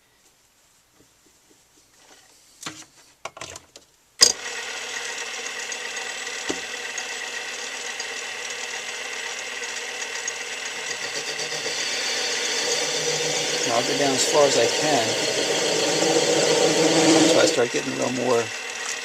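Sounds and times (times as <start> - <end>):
lathe motor whining: 4.3 - 19.0.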